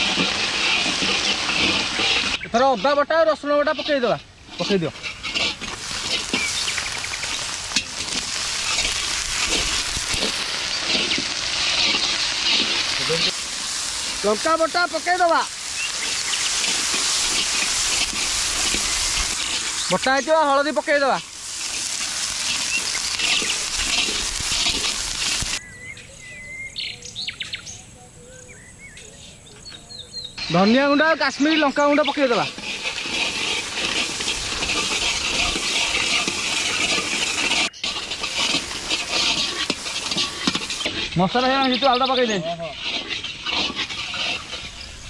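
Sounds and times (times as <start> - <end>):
birds chirping and whistling: 0.0 - 3.7, 5.8 - 7.7, 8.5 - 13.3, 14.2 - 20.8, 21.6 - 32.9, 39.4 - 45.0
onions sizzling in hot oil: 0.0 - 25.6, 30.4 - 45.0.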